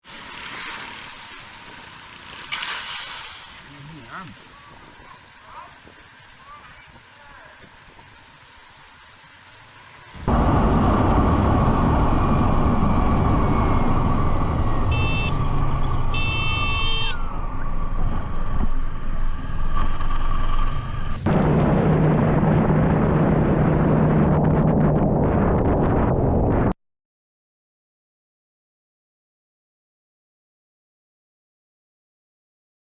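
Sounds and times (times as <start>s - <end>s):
motorcycle engine and wind rush: 3.5s - 26.8s
horn honking: 14.5s - 17.7s.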